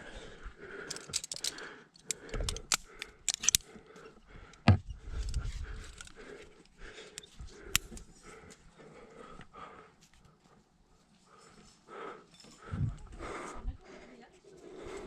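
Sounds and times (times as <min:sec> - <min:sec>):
heavy breathing: 0:00.0 - 0:10.5, 0:11.2 - 0:15.0
metal climbing hardware clinking: 0:00.8 - 0:06.2.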